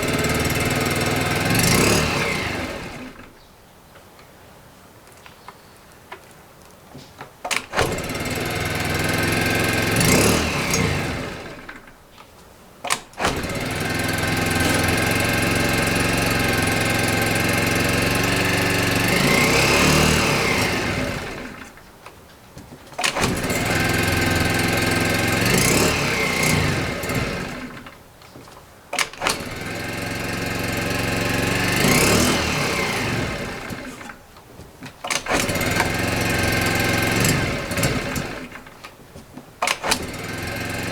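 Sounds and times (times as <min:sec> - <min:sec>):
scooter engine revving: 0:00.0 - 0:03.3, 0:07.7 - 0:11.9, 0:13.2 - 0:21.8, 0:23.0 - 0:27.9, 0:29.0 - 0:34.2, 0:35.0 - 0:38.8, 0:39.6 - 0:40.9
starter click: 0:07.4 - 0:08.6, 0:10.1 - 0:40.9.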